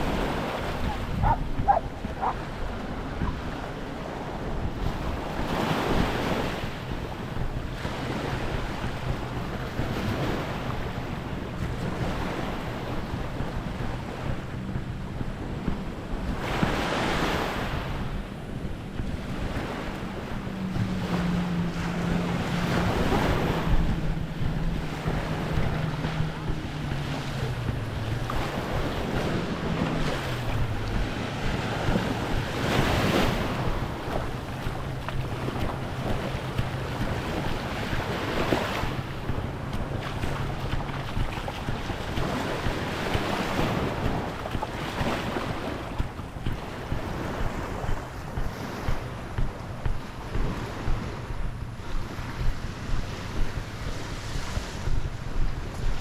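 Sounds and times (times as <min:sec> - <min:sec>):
small waves washing onto beach: 0:00.0 - 0:56.0
wind buffeting microphone: 0:00.0 - 0:56.0
low engine drone: 0:17.8 - 0:56.0.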